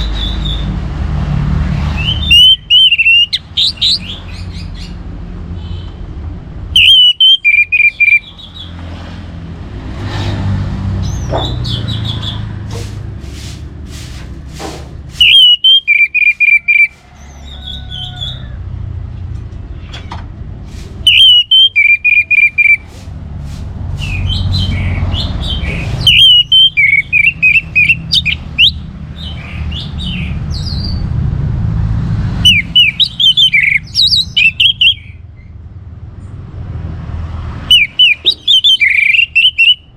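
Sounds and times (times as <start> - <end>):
thrush singing whistled phrases: 0.0 - 0.7, 1.9 - 5.0, 6.8 - 8.8, 11.0 - 12.4, 15.2 - 18.4, 21.1 - 22.9, 24.0 - 30.8, 32.4 - 35.2, 37.7 - 39.9.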